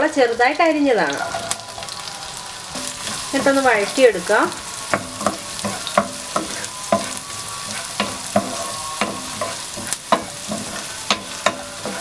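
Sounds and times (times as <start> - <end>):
onion sizzling in oil: 0.0 - 12.0
utensil scraping a pan: 2.8 - 12.0.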